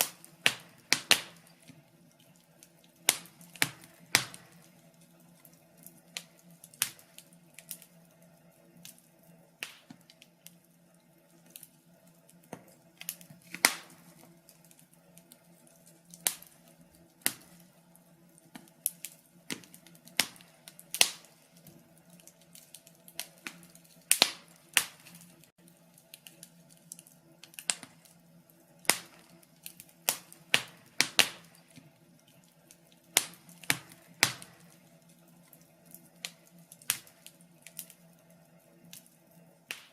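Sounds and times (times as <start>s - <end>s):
faint steady low hum: 0.0s - 39.9s
wood fire crackling: 0.0s - 39.9s.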